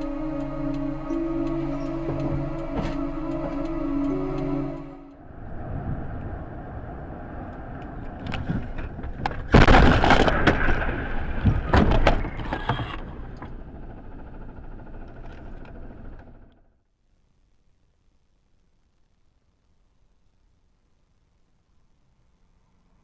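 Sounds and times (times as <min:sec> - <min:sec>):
road noise: 0:00.0 - 0:16.4
loud car collision: 0:08.3 - 0:13.3
crunching and breaking: 0:08.9 - 0:12.4.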